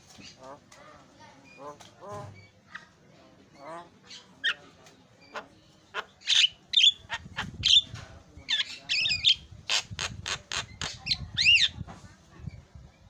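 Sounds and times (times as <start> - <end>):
bird chattering song: 3.5 - 11.8.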